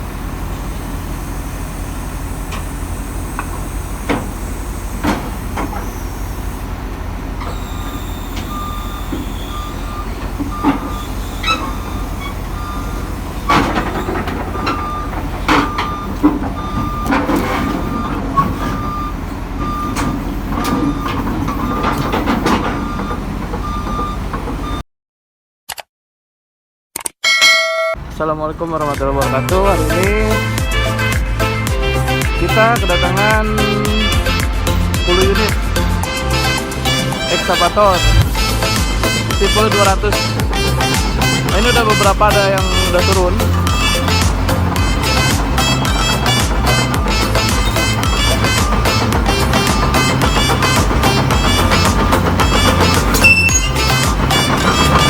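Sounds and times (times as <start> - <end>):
diesel machinery rumbling: 0.0 - 24.8, 28.0 - 55.0
backup alarm beeping: 7.4 - 24.8, 31.9 - 55.0
metal clanks: 13.4 - 18.8, 36.4 - 55.0.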